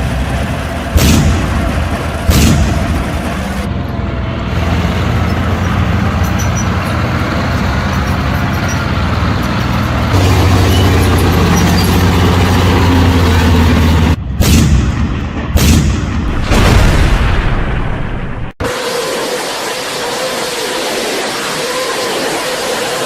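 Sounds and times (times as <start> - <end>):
heavy engine humming: 0.0 - 16.8, 18.6 - 23.0.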